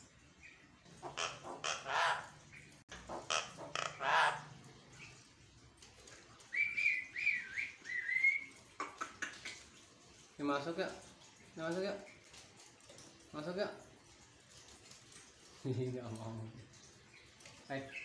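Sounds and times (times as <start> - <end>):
bird harsh rasping squawks: 1.0 - 2.4, 3.0 - 4.5.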